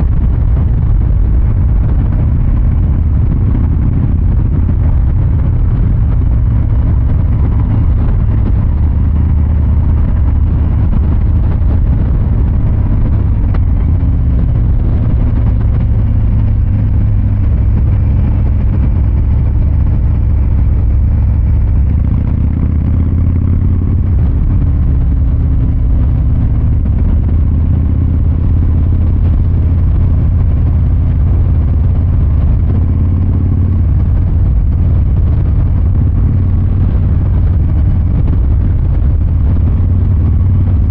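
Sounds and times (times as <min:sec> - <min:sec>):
motorcycle engine rumbling: 0:00.0 - 0:40.9.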